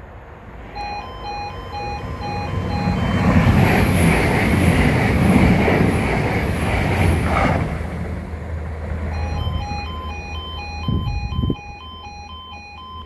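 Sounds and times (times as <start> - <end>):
train rushing past: 0.0 - 12.2
two-tone crossing alarm beeping: 0.7 - 5.0, 9.0 - 13.0.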